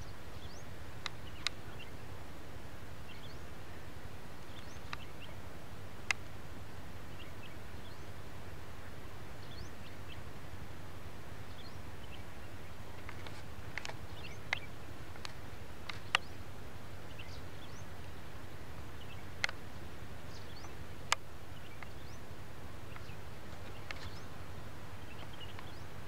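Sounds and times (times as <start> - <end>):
small birds chirping faintly: 0.0 - 26.0.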